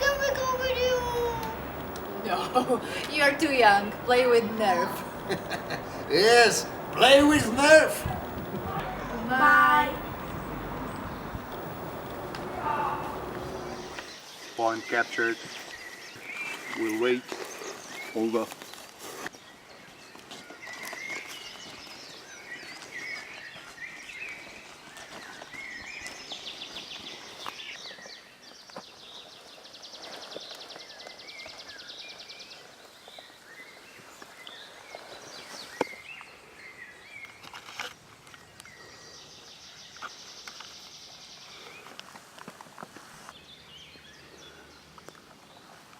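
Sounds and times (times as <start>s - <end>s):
long buzzing trills: 0.0s - 14.0s
birds chirping: 0.0s - 18.4s.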